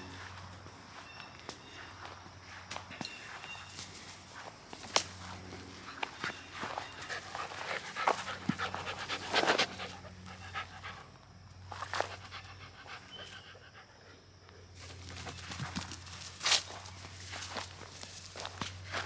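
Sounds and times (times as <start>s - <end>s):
dog panting: 6.6s - 11.2s.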